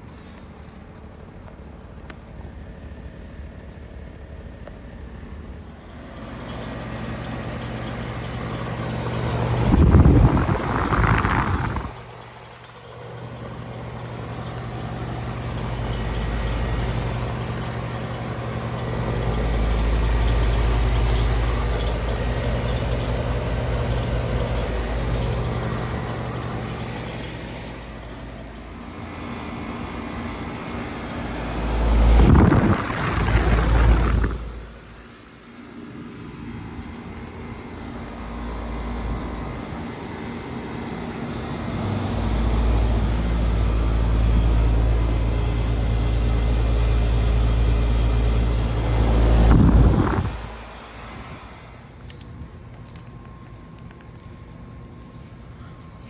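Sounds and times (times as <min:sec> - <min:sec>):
heat pump compressor and fan hum: 0:00.0 - 0:56.0
rushing noise: 0:09.6 - 0:12.1, 0:31.6 - 0:35.0.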